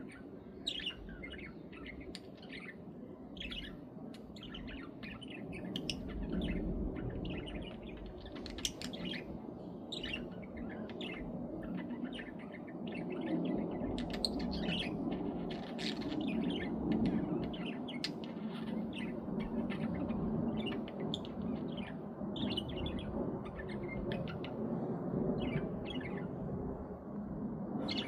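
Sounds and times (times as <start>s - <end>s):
budgerigars chattering and chirping: 4.3s - 9.3s, 9.9s - 24.5s.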